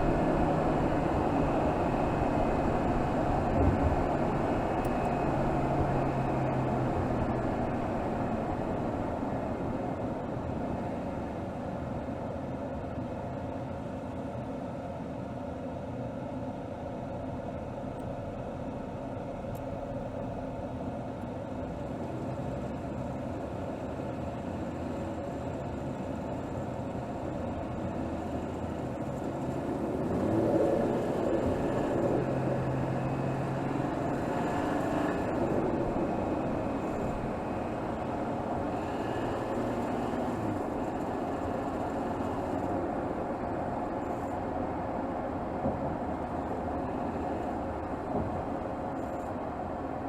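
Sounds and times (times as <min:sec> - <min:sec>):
car engine running: 0:00.0 - 0:12.0, 0:19.0 - 0:21.2, 0:27.7 - 0:49.2.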